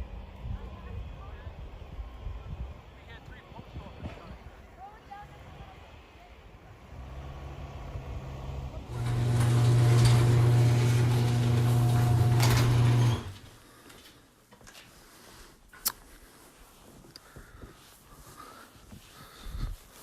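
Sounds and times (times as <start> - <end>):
motor running: 7.5 - 13.4.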